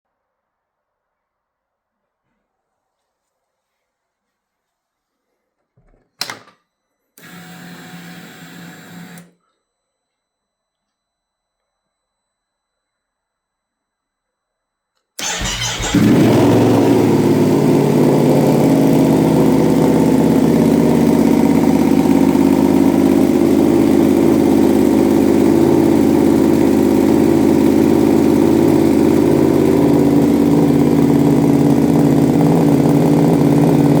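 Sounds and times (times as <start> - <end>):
starter motor cranking: 15.2 - 17.3
motorcycle engine idling loudly: 15.2 - 34.0.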